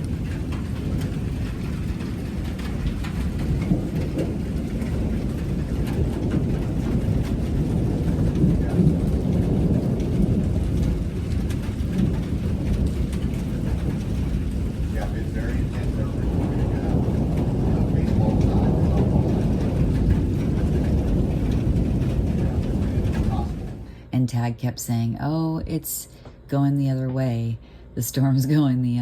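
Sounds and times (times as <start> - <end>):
rain falling: 0.0 - 24.5
thunder rumbling: 0.0 - 29.0.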